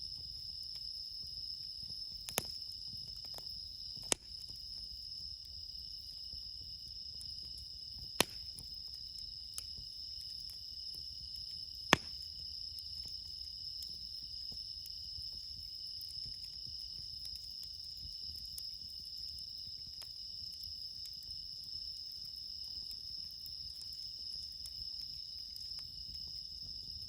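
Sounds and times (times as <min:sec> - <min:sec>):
crickets chirping: 0:00.0 - 0:27.0
firewood popping: 0:01.9 - 0:04.7, 0:07.4 - 0:09.0, 0:11.6 - 0:12.4.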